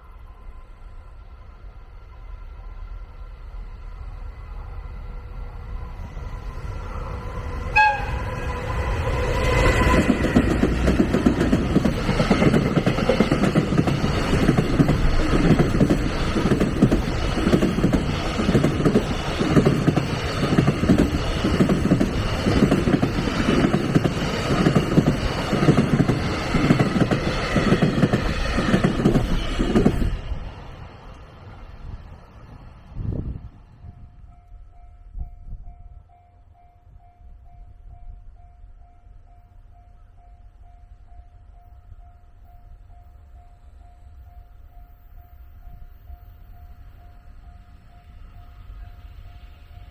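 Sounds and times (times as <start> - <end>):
train horn: 5.9 - 10.3
train wheels clacking on rails: 7.8 - 30.8.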